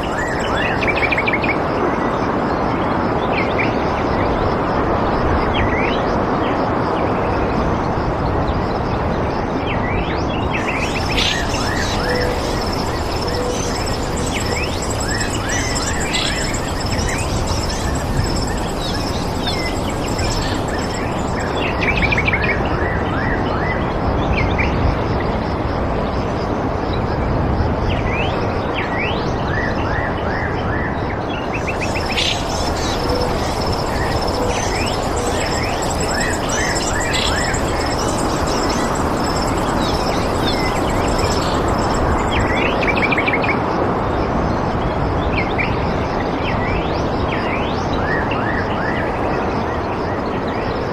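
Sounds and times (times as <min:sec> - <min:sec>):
small birds chirping: 0:00.0 - 0:01.5, 0:10.5 - 0:22.3, 0:31.5 - 0:43.2
rushing background noise: 0:00.0 - 0:07.0, 0:10.2 - 0:23.0, 0:31.4 - 0:45.0
pulsing high note: 0:10.6 - 0:22.2, 0:31.6 - 0:42.8.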